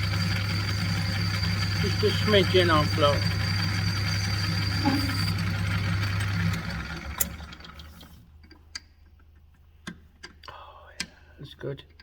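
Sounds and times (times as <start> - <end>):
metal lathe running: 0.0 - 7.7.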